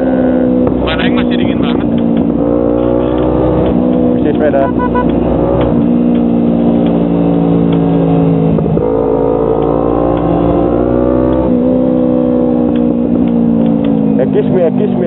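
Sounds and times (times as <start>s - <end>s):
motorcycle engine running: 0.8s - 8.7s.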